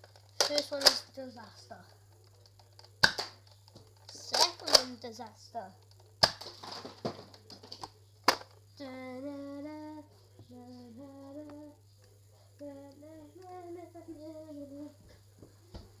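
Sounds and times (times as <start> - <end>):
toy blaster firing snap: 0.4 - 1.1, 3.0 - 3.4, 4.1 - 5.1.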